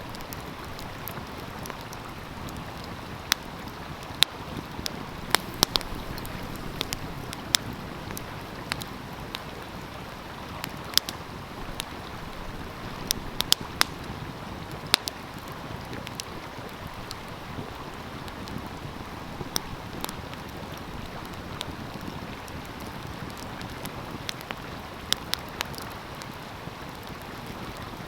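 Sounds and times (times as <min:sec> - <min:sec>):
wood fire crackling and popping: 0:00.0 - 0:27.9
stream rushing: 0:04.9 - 0:13.5.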